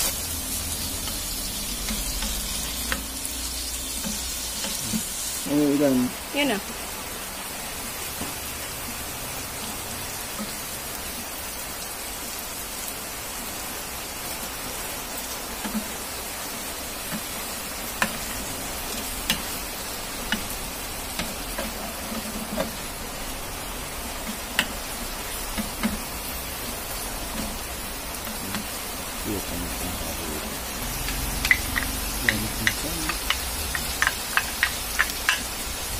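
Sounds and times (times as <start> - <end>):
food sizzling in a frying pan: 0.0 - 35.9
wooden spatula knocking on pan: 25.5 - 26.1, 31.1 - 35.5.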